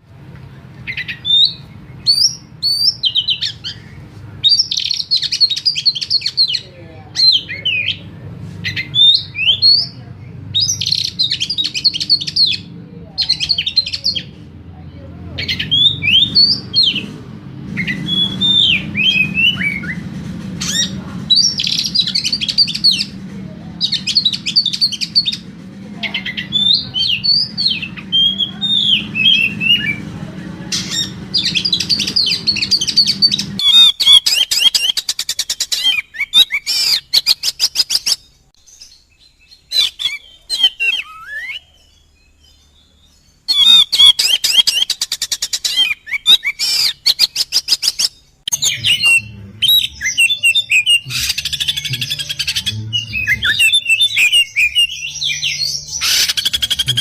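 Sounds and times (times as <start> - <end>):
low background hum: 0.0 - 57.0
bird whistling and trilling song: 0.9 - 6.6, 8.6 - 10.0, 10.6 - 14.3, 15.4 - 17.1, 17.8 - 23.2, 30.7 - 57.0
bird harsh rattling notes: 15.3 - 35.3, 48.5 - 57.0.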